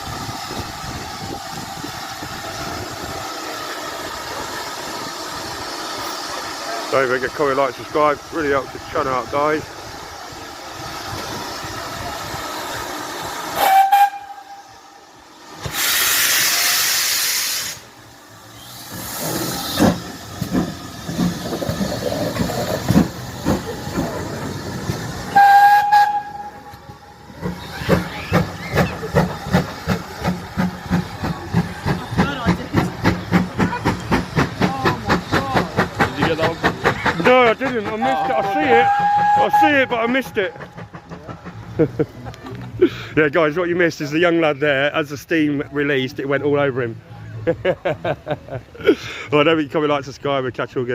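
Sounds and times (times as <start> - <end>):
rush of released steam: 0.0 - 45.6
steam locomotive chuffing: 0.0 - 50.9
steam locomotive whistle: 13.5 - 14.9, 25.3 - 26.9, 38.0 - 40.8.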